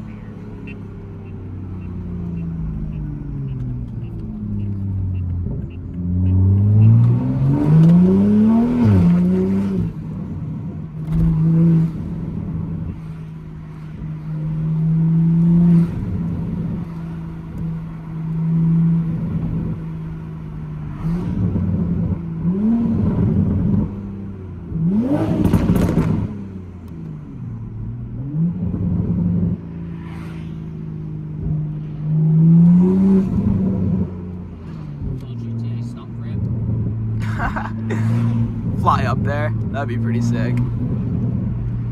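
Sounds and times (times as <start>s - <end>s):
car engine revving: 0.0s - 41.9s
sharp exhaust pops: 25.4s - 26.4s.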